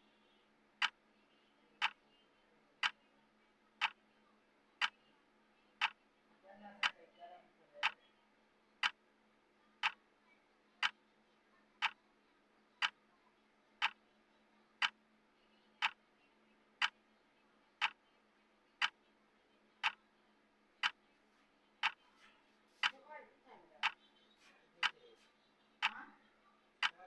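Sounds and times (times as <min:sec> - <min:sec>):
timer ticking: 0:01.8 - 0:02.0, 0:05.8 - 0:06.0, 0:08.8 - 0:09.0, 0:09.8 - 0:10.0, 0:13.8 - 0:14.0, 0:14.8 - 0:15.0, 0:15.8 - 0:16.0, 0:17.8 - 0:18.0, 0:21.8 - 0:22.0, 0:23.8 - 0:24.0, 0:25.8 - 0:26.1, 0:26.8 - 0:27.0.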